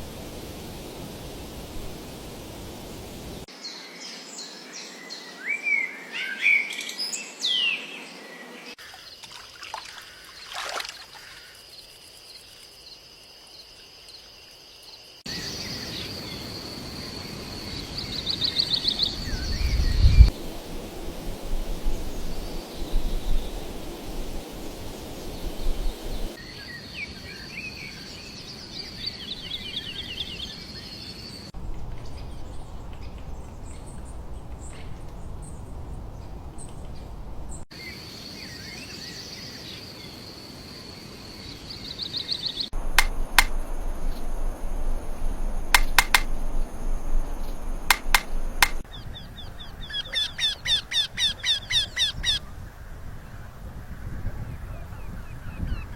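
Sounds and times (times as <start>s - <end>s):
birds chirping and trilling: 15.3s - 20.3s, 41.3s - 52.4s
rapid repeated bird calls: 41.6s - 52.4s
sharp clicks: 42.8s - 48.8s.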